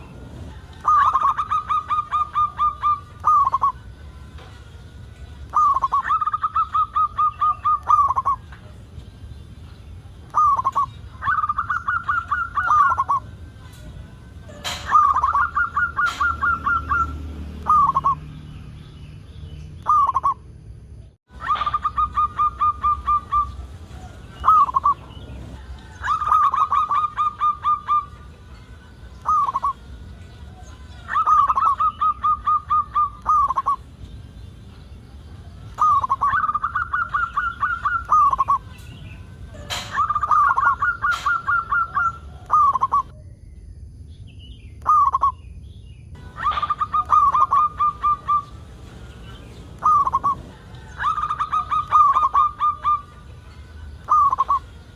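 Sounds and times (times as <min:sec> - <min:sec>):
dove cooing: 0:00.0 - 0:03.8, 0:05.5 - 0:08.8, 0:10.3 - 0:13.9, 0:14.5 - 0:18.2, 0:21.4 - 0:28.3, 0:29.2 - 0:29.9, 0:30.5 - 0:33.9, 0:35.7 - 0:38.8, 0:39.5 - 0:43.1, 0:46.2 - 0:53.3, 0:54.0 - 0:54.9.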